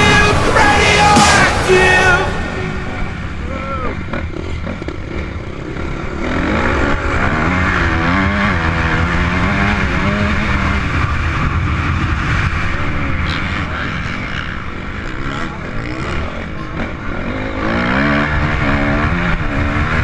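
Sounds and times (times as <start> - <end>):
steady rushing noise: 0.0 - 4.5.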